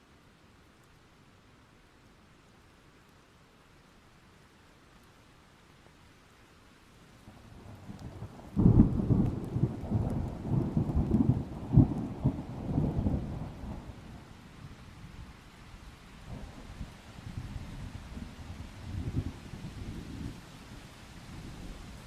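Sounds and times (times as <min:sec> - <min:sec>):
rain hiss: 0:00.0 - 0:22.0
thunder rumbling and cracking: 0:07.9 - 0:13.9.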